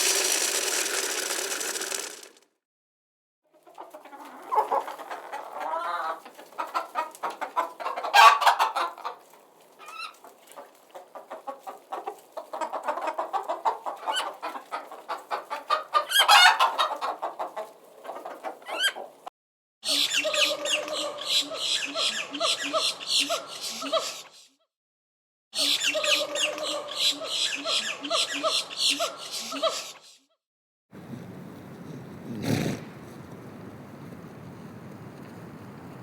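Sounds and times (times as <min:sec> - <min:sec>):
chickens clucking: 0:03.5 - 0:19.3, 0:19.9 - 0:24.3, 0:25.6 - 0:29.9.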